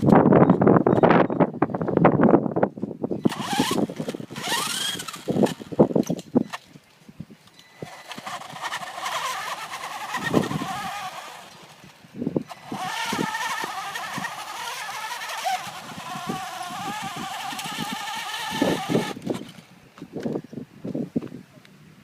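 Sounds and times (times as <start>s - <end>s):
electric motor and gearbox whining: 3.1s - 6.8s, 7.4s - 20.4s.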